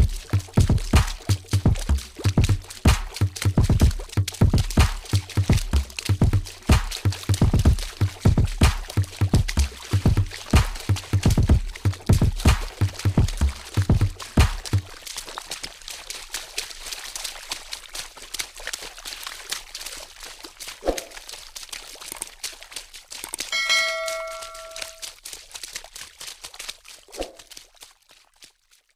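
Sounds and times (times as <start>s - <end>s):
bell-like ding: 23.5s - 25.0s.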